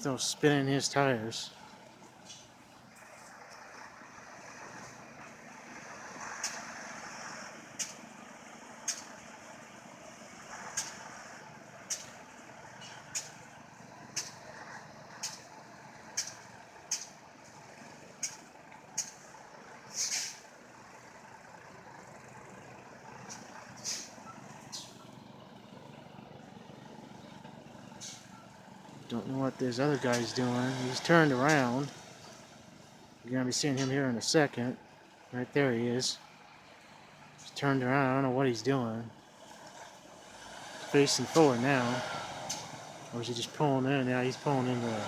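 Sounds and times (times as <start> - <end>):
tires spinning in snow: 0.0 - 45.0
truck diesel engine running: 0.0 - 45.0.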